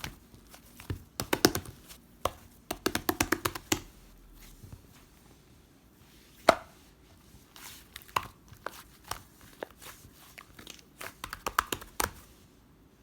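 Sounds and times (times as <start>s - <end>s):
taps and clicks on hard surface: 2.7s - 3.9s.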